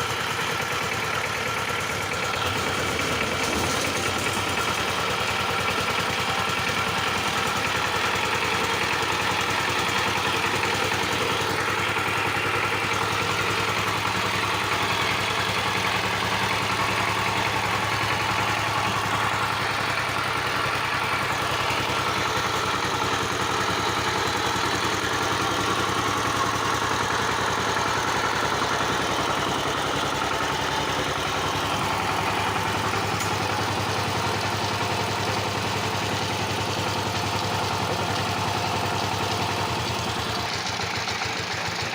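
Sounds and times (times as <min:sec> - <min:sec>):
power tiller diesel engine: 0:00.0 - 0:41.9.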